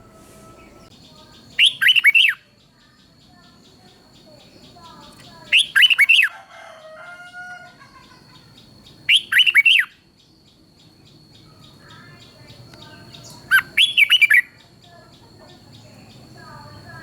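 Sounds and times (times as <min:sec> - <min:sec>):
faint bird calls: 0:00.0 - 0:10.0, 0:11.3 - 0:17.0
bird singing whistled phrases: 0:00.4 - 0:02.5, 0:05.4 - 0:06.3, 0:09.0 - 0:10.0, 0:12.2 - 0:14.6.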